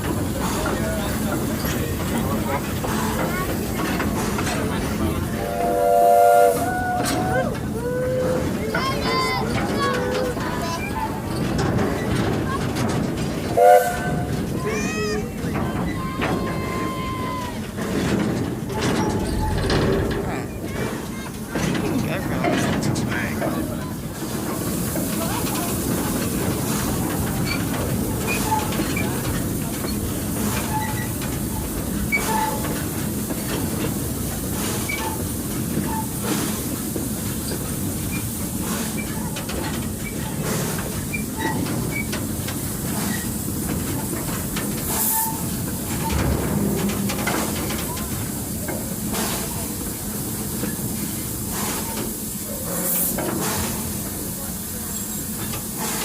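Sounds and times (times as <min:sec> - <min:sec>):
steam hissing: 0:00.0 - 0:56.0
train wheels rumbling on track: 0:00.0 - 0:56.0
short squeaks: 0:18.7 - 0:20.0.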